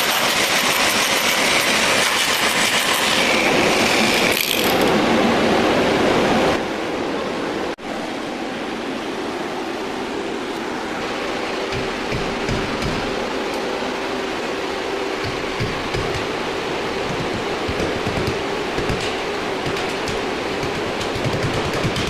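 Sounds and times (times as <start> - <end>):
grinder cutting: 0.0 - 5.0
rotary hammer chipping: 0.0 - 5.0, 15.2 - 16.4, 17.0 - 22.0.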